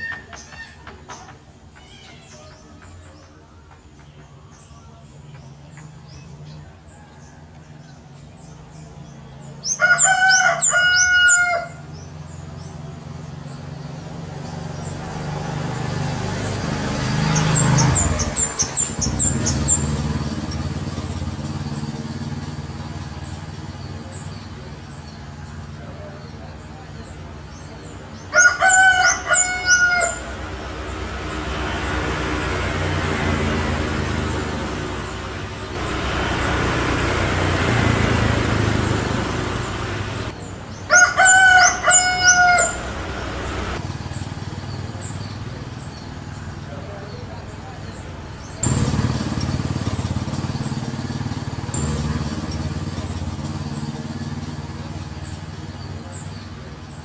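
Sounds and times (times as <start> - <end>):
passing motor vehicle hum: 0.0 - 57.0
rooster crowing: 9.7 - 11.9, 28.3 - 30.6, 40.9 - 43.8.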